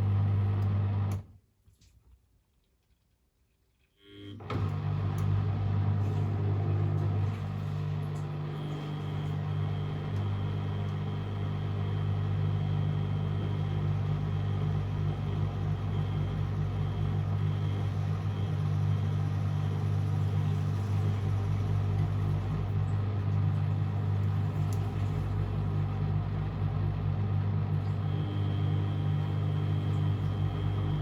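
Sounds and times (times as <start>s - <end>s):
washing machine humming: 0.0s - 1.3s, 4.4s - 31.0s.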